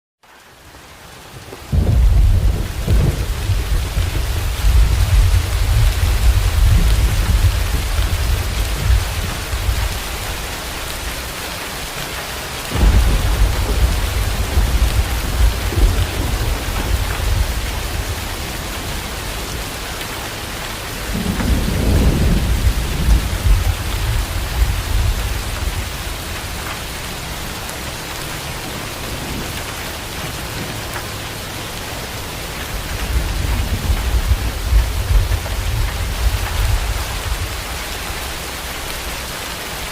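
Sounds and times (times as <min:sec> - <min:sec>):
heavy rain: 0:00.2 - 0:39.9
rolling thunder: 0:01.7 - 0:10.7, 0:12.7 - 0:20.0, 0:21.0 - 0:27.4, 0:32.9 - 0:37.9.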